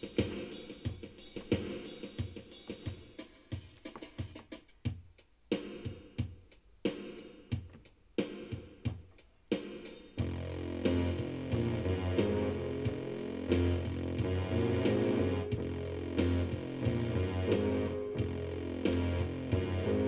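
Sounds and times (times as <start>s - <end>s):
keyboard chords: 0.0s - 3.2s, 8.8s - 20.0s
keyboard drum pattern with bass: 0.0s - 20.0s.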